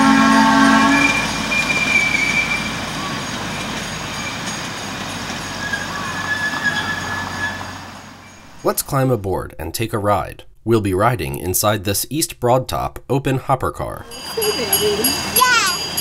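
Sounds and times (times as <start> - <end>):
train horn: 0.0 - 2.5
high wheel squeals: 0.0 - 8.5, 14.1 - 16.0
train wheels on rails: 0.0 - 8.8, 14.0 - 16.0.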